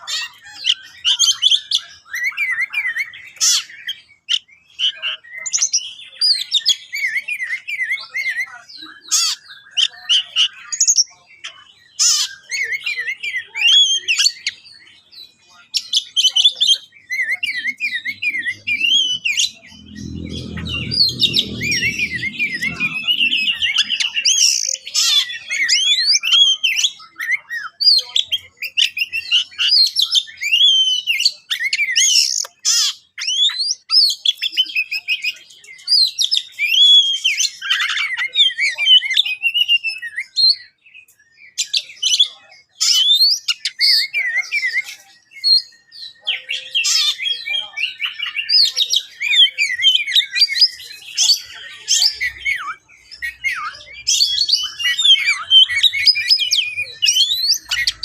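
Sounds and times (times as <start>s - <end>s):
bird singing whistles and chirps: 0.0s - 58.0s
faint low rumble: 18.0s - 24.6s.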